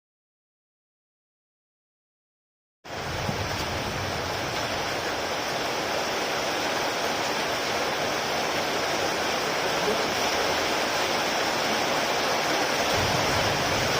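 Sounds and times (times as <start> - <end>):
heavy rain hissing: 2.9 - 13.9.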